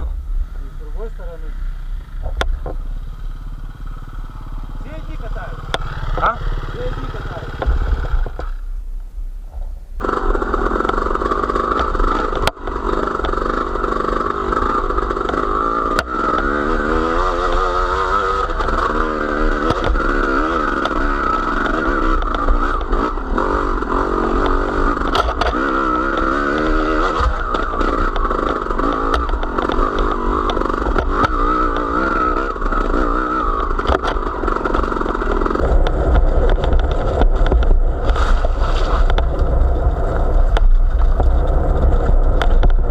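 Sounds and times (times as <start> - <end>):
small vehicle engine revving: 0.0 - 8.7, 10.0 - 42.9
knocks and clatter: 18.4 - 23.6, 24.3 - 42.9.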